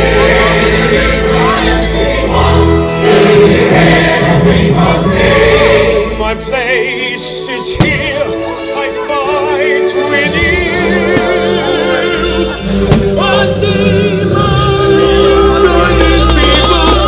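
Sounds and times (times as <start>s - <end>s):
choral singing: 0.0s - 8.6s, 9.2s - 17.0s
orchestral accompaniment: 0.0s - 17.0s
sharp bang: 7.8s - 8.5s, 12.8s - 13.4s.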